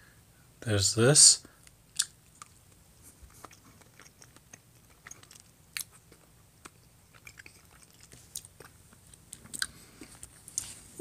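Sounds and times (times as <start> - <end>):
person chewing with mouth clicks: 1.9 - 10.7.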